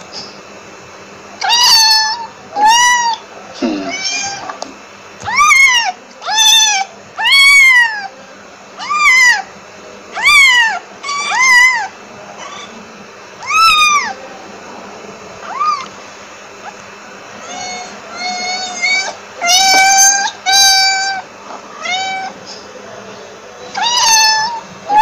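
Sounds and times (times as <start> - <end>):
cat meowing: 1.4 - 4.6, 5.2 - 8.1, 8.8 - 9.5, 10.1 - 12.8, 13.4 - 14.2, 15.4 - 15.9, 17.4 - 22.4, 23.7 - 25.0.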